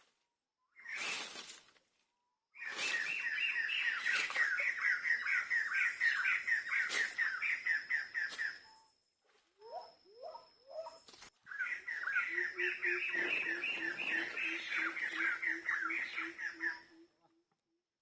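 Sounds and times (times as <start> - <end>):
lower rising bird calls: 2.6 - 9.0, 9.6 - 17.0.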